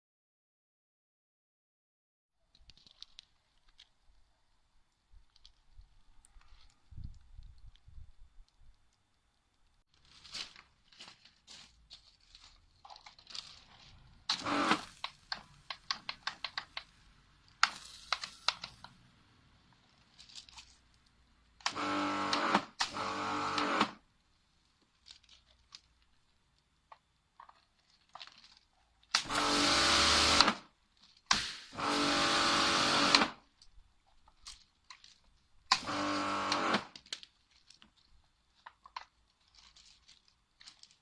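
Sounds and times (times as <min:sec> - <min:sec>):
pressure washer motor starting: 0:14.3 - 0:14.9, 0:21.6 - 0:24.0, 0:29.2 - 0:30.6, 0:31.3 - 0:33.4, 0:35.7 - 0:36.9.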